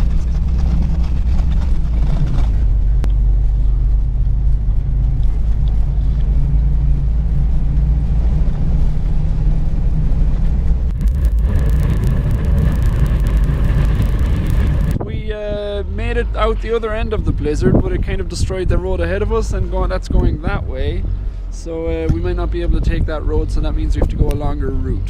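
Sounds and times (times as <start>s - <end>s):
van engine drone: 0.0s - 25.0s
hissing noise: 10.9s - 15.0s.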